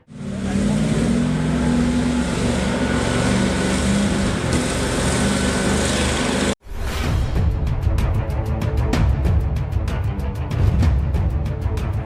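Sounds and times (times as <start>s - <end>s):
heavy truck engine running: 0.0s - 6.6s.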